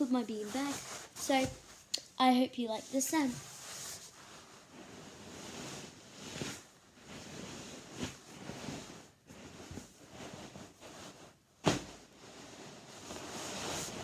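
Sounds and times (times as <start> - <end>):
hand slapping beanbag: 11.6 - 12.0.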